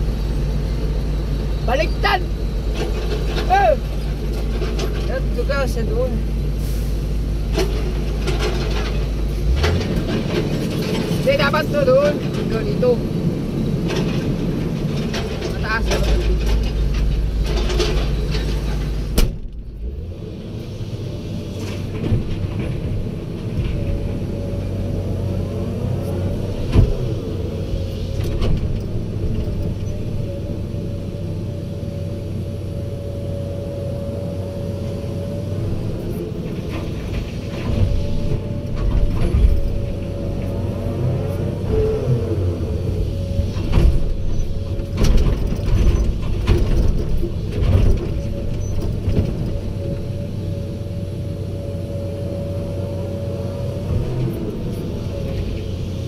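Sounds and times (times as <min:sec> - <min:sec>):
excavator diesel engine: 0:00.0 - 0:56.0.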